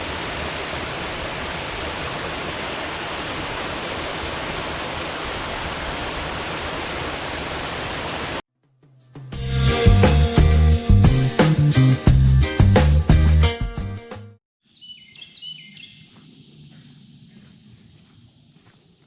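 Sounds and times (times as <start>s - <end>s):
water falling below a dam: 0.0s - 8.4s.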